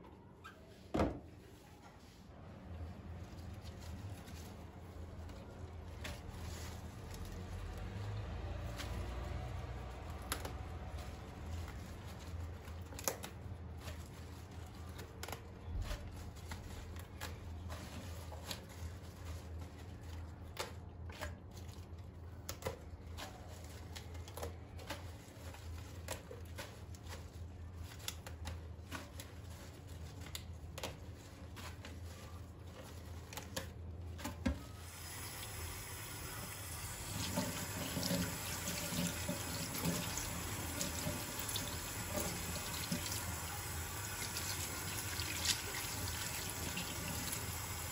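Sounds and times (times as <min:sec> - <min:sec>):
tap water running into sink: 0:35.0 - 0:47.9.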